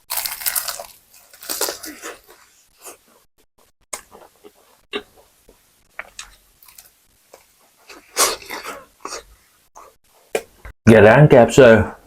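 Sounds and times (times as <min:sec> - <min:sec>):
crunchy chewing of fried chicken: 0:00.0 - 0:03.2, 0:06.0 - 0:09.3.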